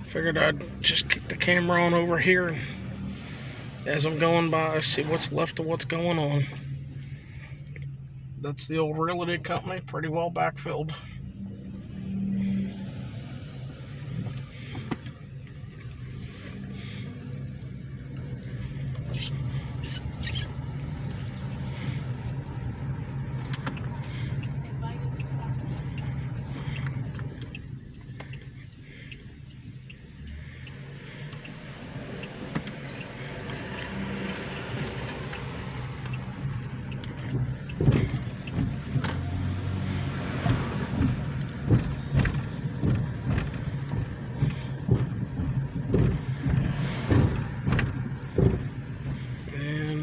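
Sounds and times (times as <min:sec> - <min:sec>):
car engine and road noise: 0:00.0 - 0:50.0
short knocks and rattles: 0:40.4 - 0:49.2.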